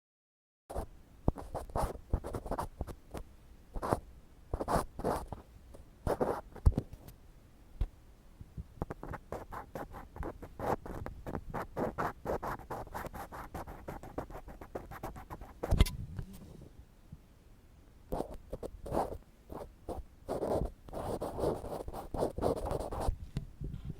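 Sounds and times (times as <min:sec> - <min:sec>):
ear pick scraping microphone: 0:15.0 - 0:16.8.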